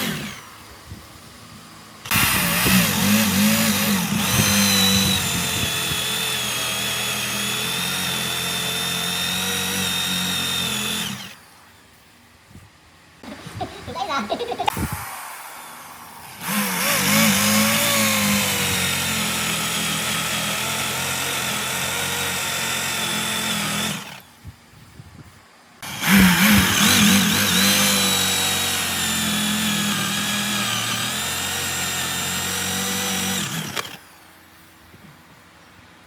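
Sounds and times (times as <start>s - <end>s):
power tool high whine: 0.0s - 0.6s, 2.0s - 11.5s, 15.0s - 24.3s, 25.8s - 34.1s.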